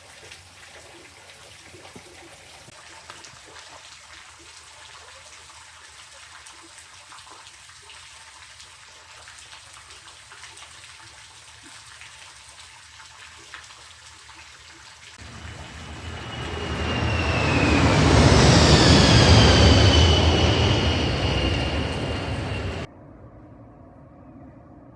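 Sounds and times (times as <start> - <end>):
small water drips: 0.0 - 17.7
water trickling: 0.0 - 19.2
low rumble with whining tones: 15.2 - 23.9.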